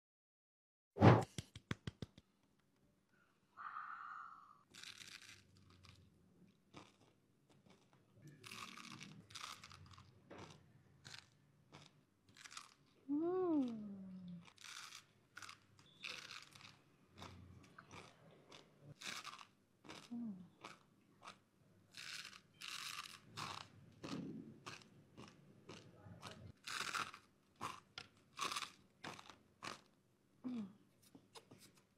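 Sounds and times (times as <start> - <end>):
crunching and chewing snacks: 4.7 - 30.6.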